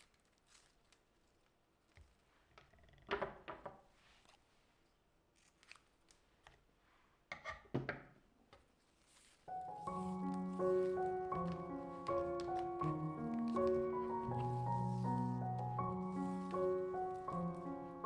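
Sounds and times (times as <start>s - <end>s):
music: 9.5s - 18.0s.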